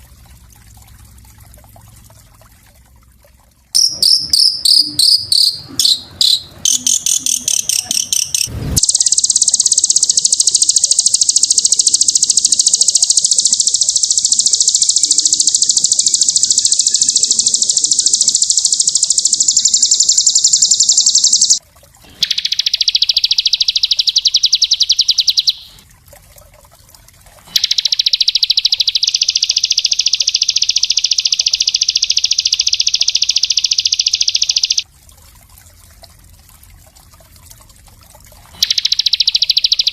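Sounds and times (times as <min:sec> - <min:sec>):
songbird chirping and trilling: 0:03.8 - 0:21.6, 0:22.2 - 0:25.8, 0:27.6 - 0:34.8, 0:38.6 - 0:39.9.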